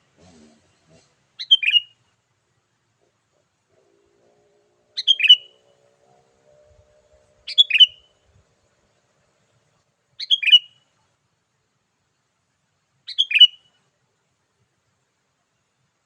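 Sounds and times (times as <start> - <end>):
bulbul song: 1.4 - 2.0, 3.8 - 9.1, 10.2 - 10.9, 13.1 - 13.8.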